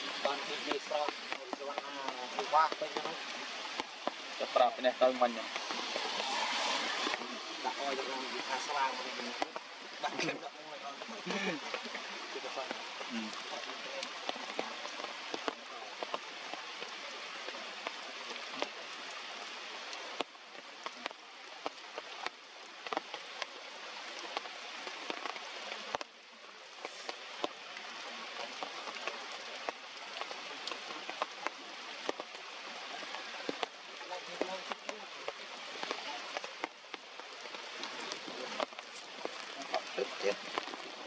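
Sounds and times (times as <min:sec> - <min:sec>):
heavy rain hissing: 0:00.0 - 0:41.0
sharp drip taps: 0:00.2 - 0:06.3, 0:09.3 - 0:10.4, 0:12.6 - 0:18.8, 0:19.9 - 0:23.6, 0:24.2 - 0:26.2, 0:26.8 - 0:27.6, 0:28.4 - 0:40.9.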